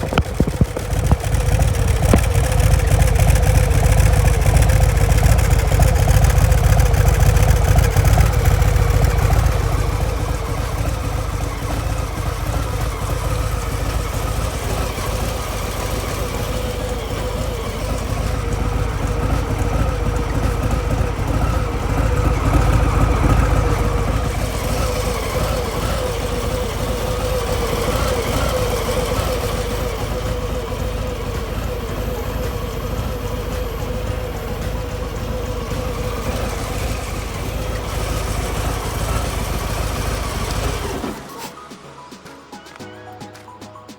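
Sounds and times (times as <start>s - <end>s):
motorcycle engine running: 0.0s - 41.4s.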